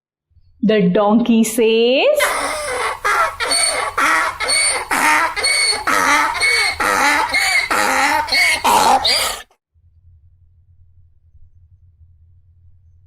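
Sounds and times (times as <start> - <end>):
donkey braying: 2.2 - 9.6.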